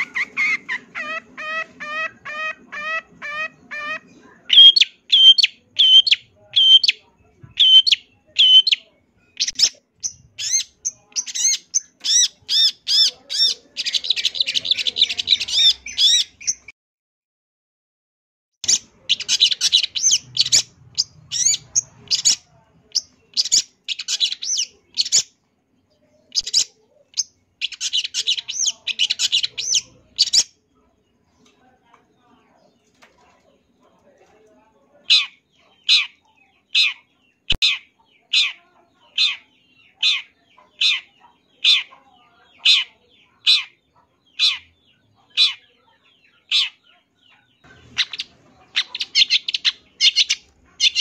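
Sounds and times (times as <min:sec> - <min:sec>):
bird whistling and chattering: 0:00.0 - 0:16.7, 0:18.6 - 0:25.4, 0:26.3 - 0:30.5, 0:47.7 - 0:51.0.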